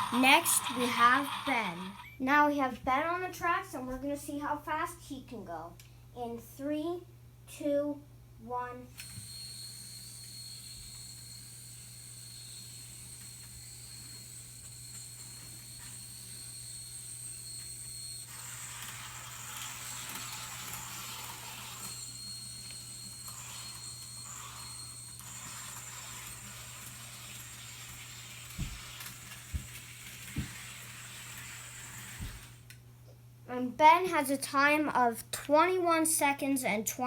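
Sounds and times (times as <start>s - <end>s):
model train motor whine: 0.0s - 2.2s, 9.0s - 32.7s.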